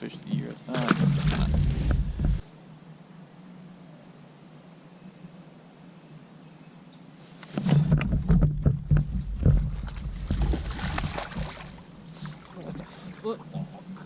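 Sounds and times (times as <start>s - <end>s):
knocks and thumps against kayak hull: 0.7s - 2.4s, 7.5s - 11.8s.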